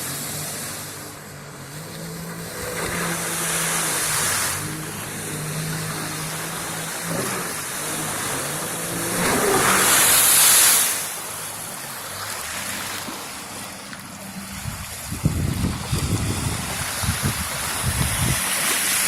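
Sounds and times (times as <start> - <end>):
jet ski engine humming: 0.0 - 19.0
wind buffeting microphone: 14.4 - 18.7.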